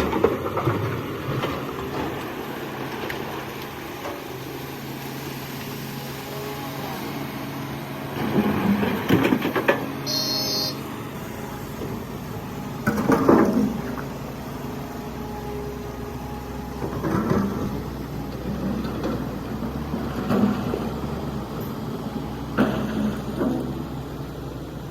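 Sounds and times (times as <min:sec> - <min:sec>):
excavator diesel engine running: 0:00.0 - 0:24.9
rough engine bursts: 0:08.1 - 0:14.1.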